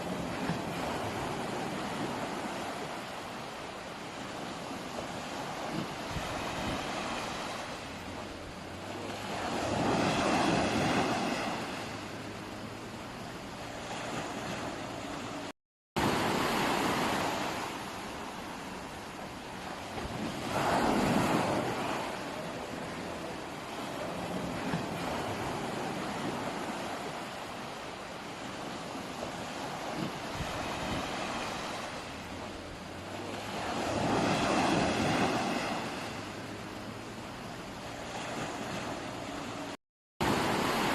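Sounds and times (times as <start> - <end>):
wind buffeting the microphone: 0.0 - 8.2, 28.1 - 36.0
sea waves washing in: 0.0 - 40.9
wind on microphone: 0.0 - 40.9.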